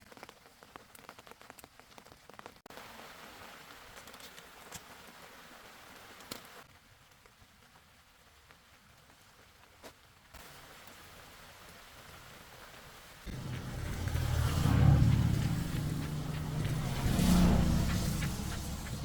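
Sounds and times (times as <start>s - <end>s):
steady hiss of rain: 0.0s - 14.5s
rain drops ticking: 0.0s - 19.0s.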